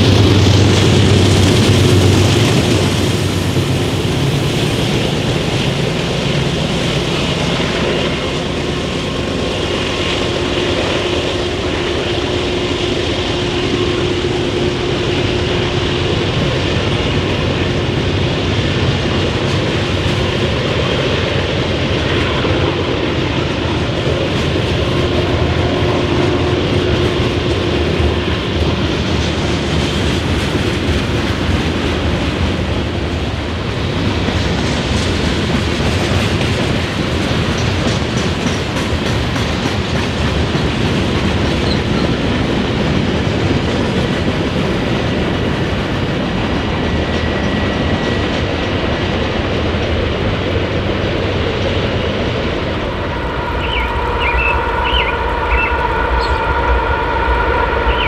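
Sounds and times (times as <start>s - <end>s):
train rumbling past on rails: 0.0s - 58.0s.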